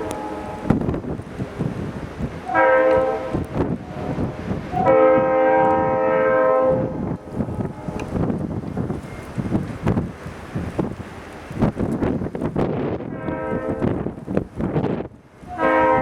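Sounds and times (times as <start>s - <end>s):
train air horn blasts: 0.0s - 1.0s, 2.4s - 8.0s, 13.1s - 14.1s, 15.5s - 16.0s
passing train rumble: 0.0s - 16.0s.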